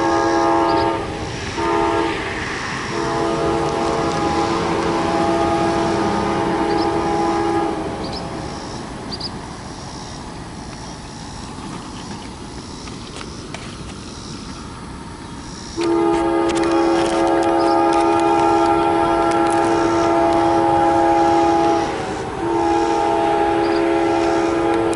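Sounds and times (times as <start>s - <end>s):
train air horn chord: 0.0s - 2.2s, 2.9s - 8.0s, 15.8s - 24.9s
train rumble: 0.0s - 24.9s.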